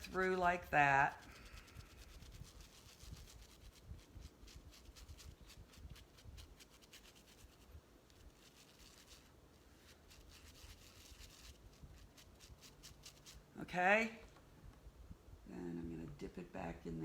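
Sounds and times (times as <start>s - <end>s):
brush bristles scrubbing in soap: 0.0s - 13.5s.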